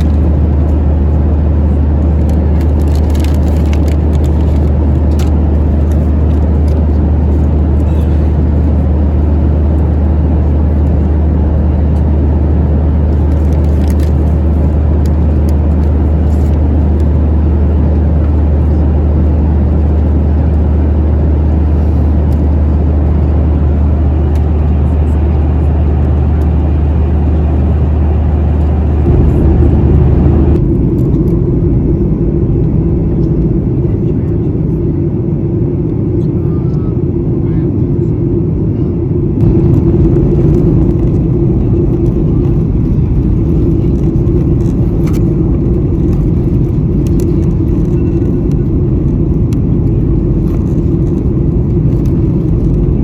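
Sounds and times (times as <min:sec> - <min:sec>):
jet engines droning: 0:00.0 - 0:53.0
rush of airflow: 0:20.2 - 0:35.7, 0:39.4 - 0:53.0.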